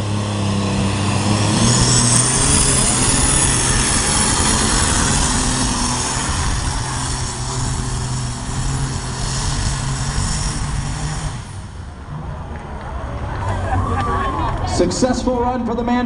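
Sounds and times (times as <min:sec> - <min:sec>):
high steady whine: 0:00.0 - 0:13.0
tractor engine at full power: 0:00.0 - 0:13.8.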